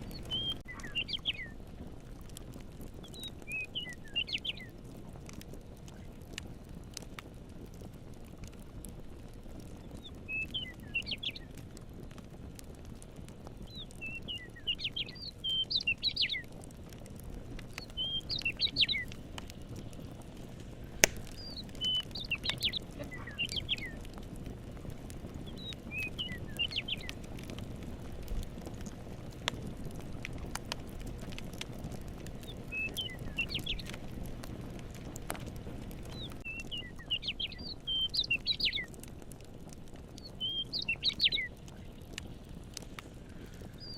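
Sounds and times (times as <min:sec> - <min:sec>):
songbird chirping: 0:00.0 - 0:01.6, 0:03.1 - 0:04.7, 0:09.9 - 0:11.5, 0:13.7 - 0:16.5, 0:17.7 - 0:19.2, 0:21.0 - 0:24.1, 0:25.4 - 0:27.2, 0:32.4 - 0:34.0, 0:36.1 - 0:38.9, 0:40.3 - 0:41.9
campfire crackling and popping: 0:00.0 - 0:43.9
low rumble of fire: 0:00.0 - 0:43.9.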